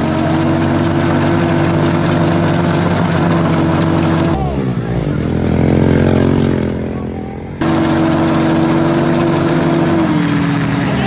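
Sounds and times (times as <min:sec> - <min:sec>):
moped engines running: 0:04.4 - 0:08.4.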